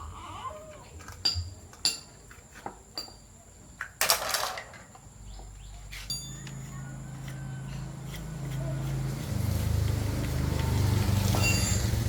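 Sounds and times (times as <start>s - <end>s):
metal clatter: 4.0s - 4.9s
metal parts clinking: 4.0s - 5.0s.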